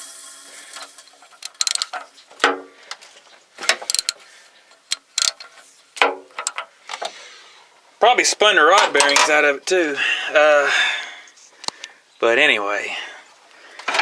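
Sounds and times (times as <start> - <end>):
metal tools clinking and clanking: 8.7 - 9.4.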